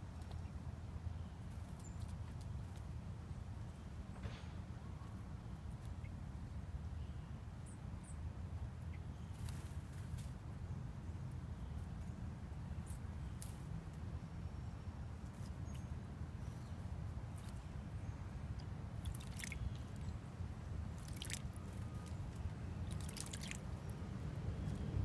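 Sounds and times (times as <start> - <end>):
low background rumble: 4.6 - 25.0
birds splashing in water: 17.1 - 25.0.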